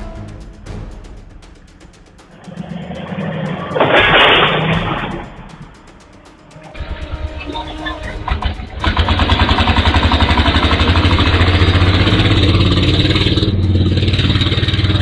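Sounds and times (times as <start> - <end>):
vehicle engine running: 6.8 - 15.0.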